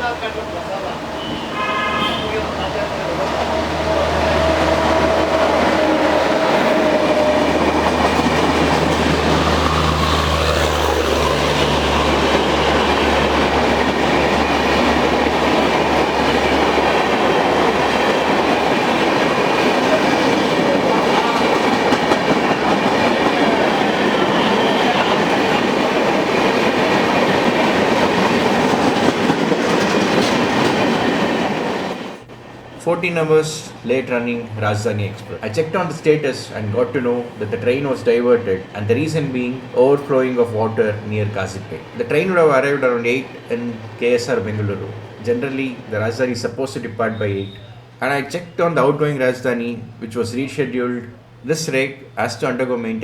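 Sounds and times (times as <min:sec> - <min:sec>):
train rumbling past: 0:00.0 - 0:53.0
wheels clattering over rail joints: 0:02.4 - 0:32.1.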